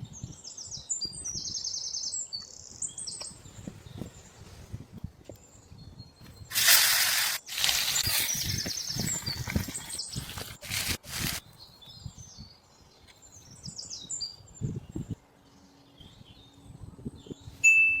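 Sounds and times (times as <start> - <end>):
small birds chirping: 5.4 - 17.6
loud hiss: 6.5 - 8.4.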